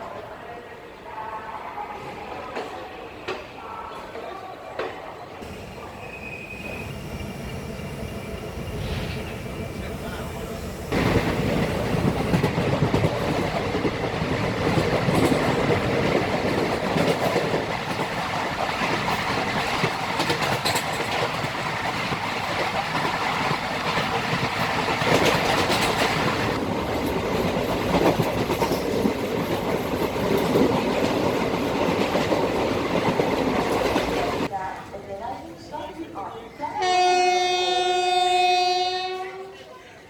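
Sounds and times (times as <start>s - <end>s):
train wheels clattering on rails: 6.6s - 34.5s.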